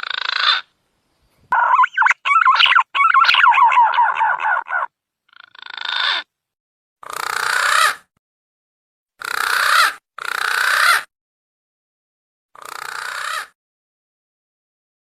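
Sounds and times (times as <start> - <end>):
warbling whistled bird call: 1.5 - 4.9
rough hoarse bird calls: 1.5 - 6.2.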